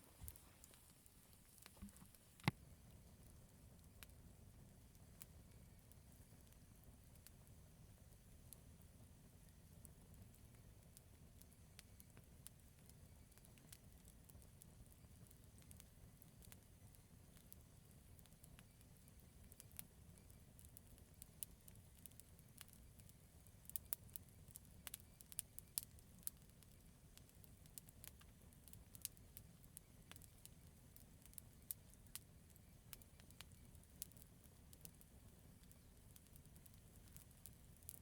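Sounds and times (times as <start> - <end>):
campfire crackling: 0.0 - 38.0
fire pops and snaps: 0.2 - 3.1, 9.8 - 38.0.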